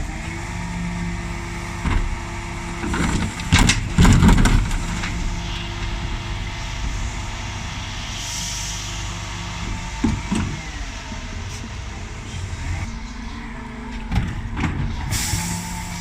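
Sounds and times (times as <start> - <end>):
diesel engine running: 0.0 - 16.0
steady mid-pitched tone: 12.8 - 16.0.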